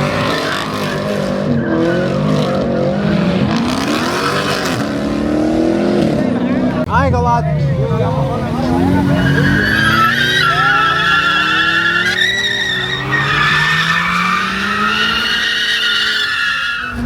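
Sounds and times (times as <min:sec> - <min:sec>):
car tires squealing: 0:00.0 - 0:05.0, 0:08.1 - 0:17.0
car engine revving: 0:00.0 - 0:17.0.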